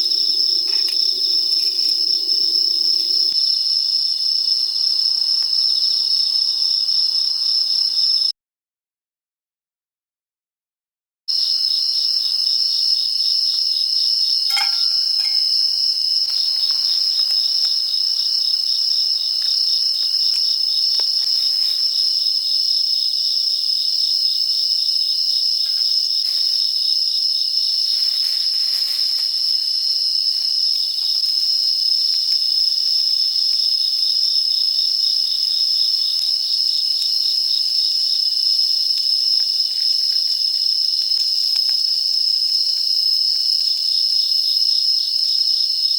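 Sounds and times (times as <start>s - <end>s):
insects chirping: 0.0s - 8.3s, 11.3s - 45.9s
brief clink: 14.5s - 15.5s.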